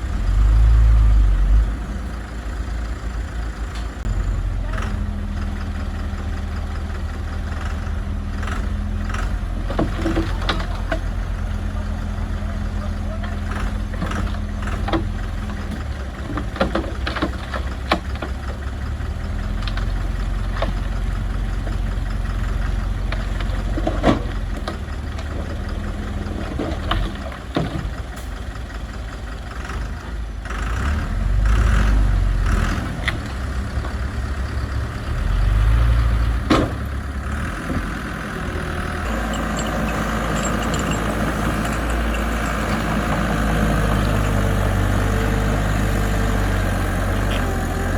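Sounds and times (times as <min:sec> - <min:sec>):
diesel machinery engine running: 0:00.0 - 0:47.9
metal clanks and knocks: 0:09.1 - 0:11.2, 0:13.2 - 0:28.4, 0:36.4 - 0:38.1, 0:38.7 - 0:44.4.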